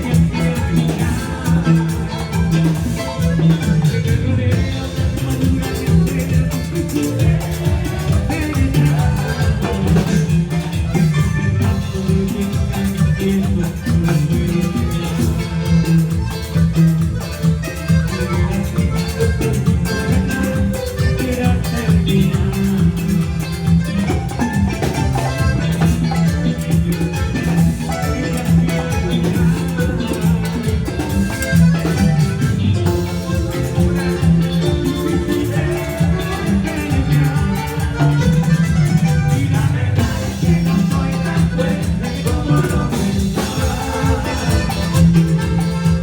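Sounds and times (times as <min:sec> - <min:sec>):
band playing music: 0:00.0 - 0:46.0
busy regular percussion: 0:00.0 - 0:46.0
steady bass line: 0:00.0 - 0:46.0.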